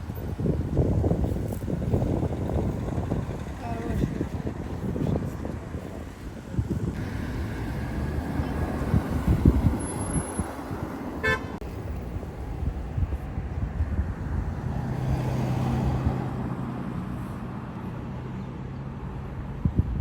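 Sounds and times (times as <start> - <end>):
road traffic rumbling: 0.0 - 20.0
car horn beep: 11.2 - 11.6.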